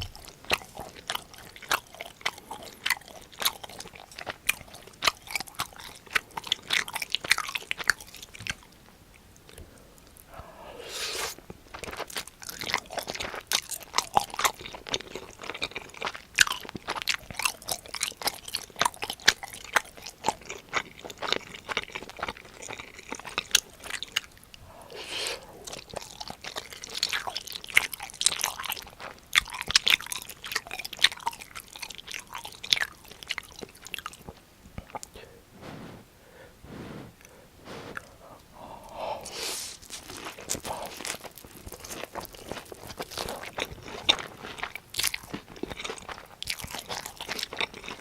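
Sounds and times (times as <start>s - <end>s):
crispy food crunching: 0.0s - 10.3s, 11.2s - 35.9s, 38.8s - 48.0s.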